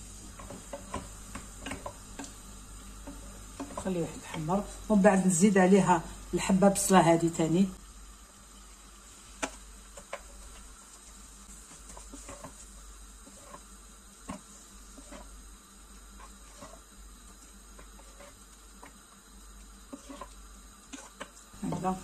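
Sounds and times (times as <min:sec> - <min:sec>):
wooden spoon stirring: 0:00.0 - 0:04.9, 0:09.4 - 0:22.0
food sizzling in a pot: 0:00.0 - 0:22.0.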